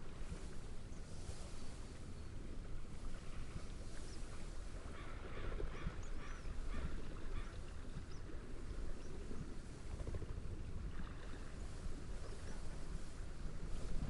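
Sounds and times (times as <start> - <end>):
gentle wave rumble: 0.0 - 14.0
steady wind: 0.0 - 14.0
seagulls calling: 4.9 - 7.6.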